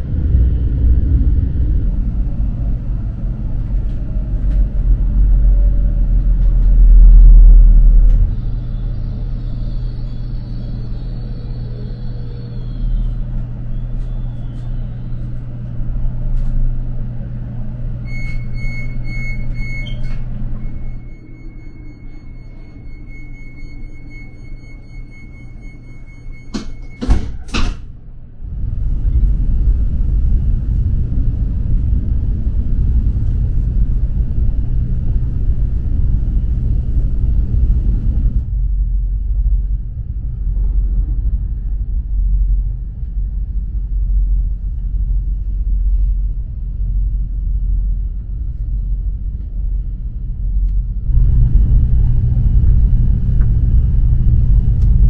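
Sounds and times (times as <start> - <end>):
train low rumble: 0.0 - 55.0
high warning tone: 17.4 - 27.3
sliding train door shutting: 26.3 - 27.9.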